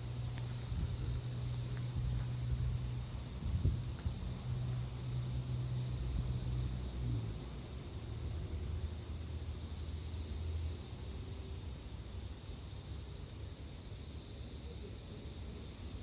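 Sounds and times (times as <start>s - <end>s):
low rumble: 0.0s - 7.4s
bell crickets chirping: 0.0s - 16.0s.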